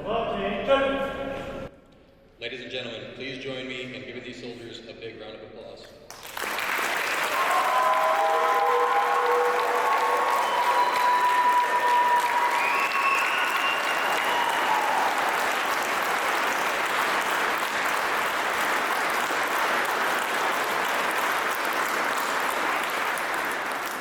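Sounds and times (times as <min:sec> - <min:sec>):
crowd applauding: 0:06.1 - 0:24.0.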